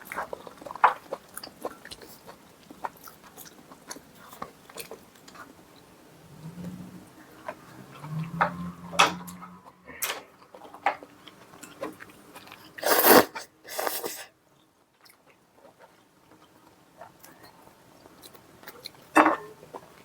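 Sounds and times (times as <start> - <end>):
chewing and biting: 0.0 - 5.9, 15.0 - 20.0.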